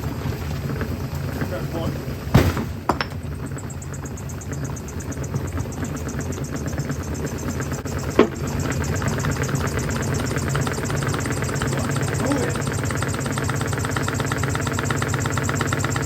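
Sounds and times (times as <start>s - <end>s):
washing machine humming: 0.0s - 16.0s
sharp bang: 2.3s - 3.1s
brick rattling in drum: 2.8s - 3.3s.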